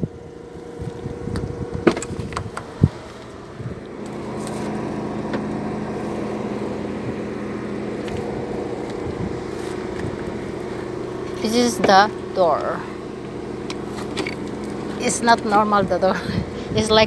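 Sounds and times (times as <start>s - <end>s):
car engine hum: 0.0s - 17.0s
car doors unlatching and opening: 1.3s - 5.7s, 8.0s - 15.6s.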